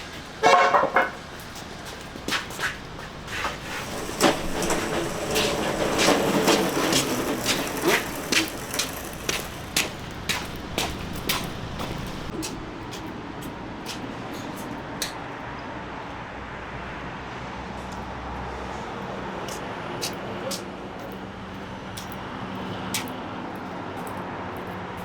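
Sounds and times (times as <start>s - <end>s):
sharp knocks and clanks: 0.1s - 12.5s.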